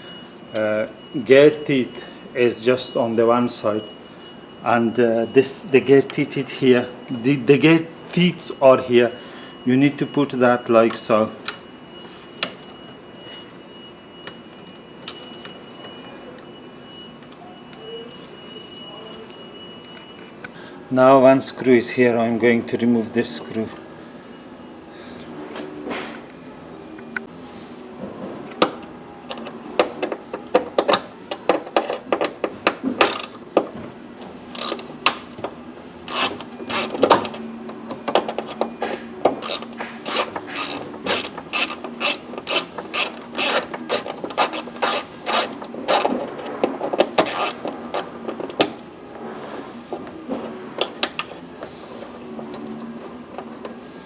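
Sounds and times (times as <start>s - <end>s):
ratchet wrench clicking: 33.0s - 33.4s, 34.5s - 34.9s, 36.1s - 37.1s, 39.4s - 46.1s, 47.2s - 48.1s.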